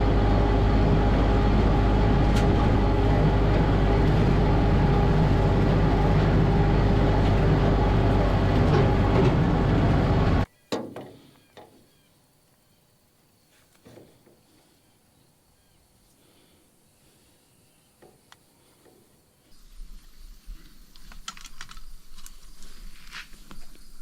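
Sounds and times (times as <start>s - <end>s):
vehicle running rumble: 0.0s - 10.5s.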